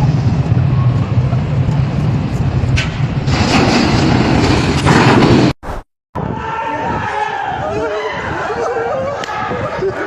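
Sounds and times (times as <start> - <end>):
building collapsing rumble: 0.0 - 5.6
falling debris rushing: 2.8 - 5.6.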